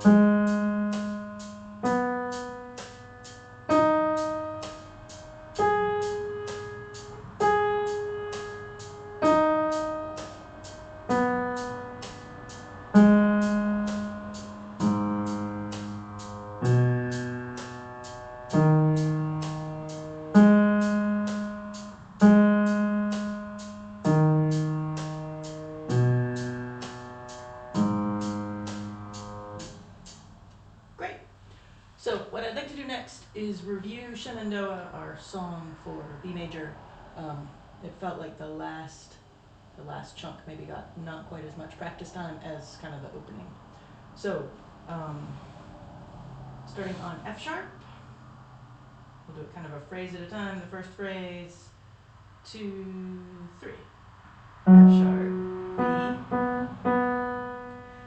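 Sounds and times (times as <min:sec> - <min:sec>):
piano notes and chords: 0:00.0 - 0:30.4, 0:54.6 - 0:58.0.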